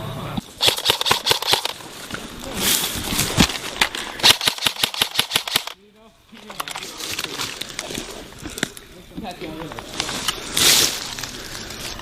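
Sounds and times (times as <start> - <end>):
airsoft guns firing: 0.6 - 1.8, 4.2 - 5.8.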